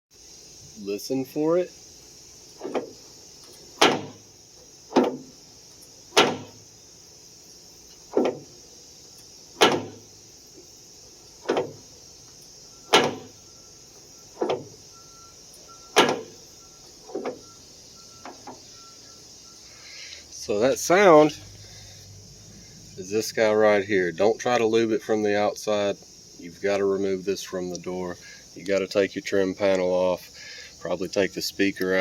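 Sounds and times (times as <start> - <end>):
car door check popping: 2.5 - 4.3, 4.9 - 5.4, 6.1 - 6.7, 7.9 - 8.6, 9.2 - 10.7, 11.3 - 13.5, 14.2 - 14.9, 15.5 - 18.7.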